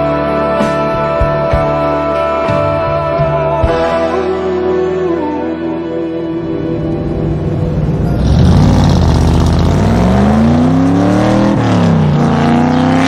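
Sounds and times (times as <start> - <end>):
car engine accelerating: 6.3 - 13.0.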